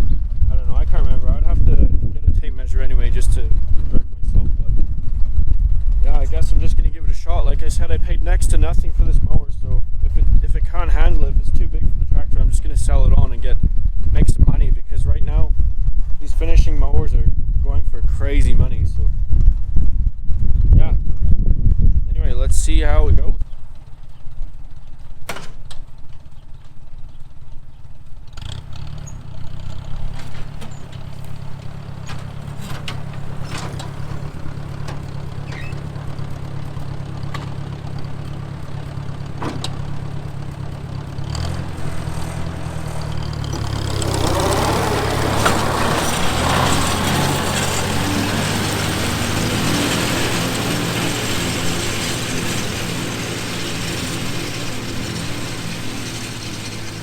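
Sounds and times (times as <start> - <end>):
tractor engine running: 0.0 - 14.4, 22.5 - 57.0
mower blades whirring: 28.5 - 57.0.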